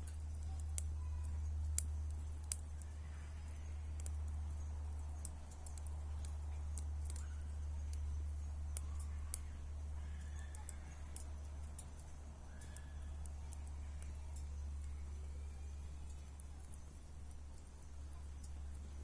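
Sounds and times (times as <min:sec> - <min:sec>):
bonfire crackling: 0:00.0 - 0:19.0.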